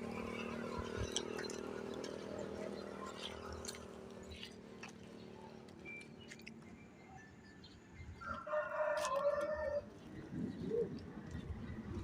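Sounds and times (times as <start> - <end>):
rooster crowing: 8.2 - 9.9.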